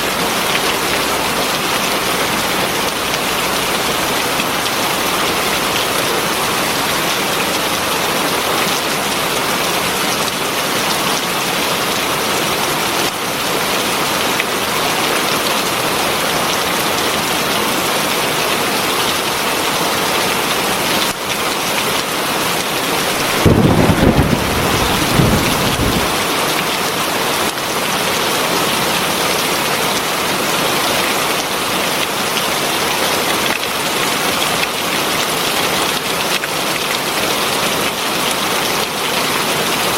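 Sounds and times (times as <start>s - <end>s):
heavy rain falling: 0.0s - 39.9s
low rumble of thunder: 23.2s - 26.3s.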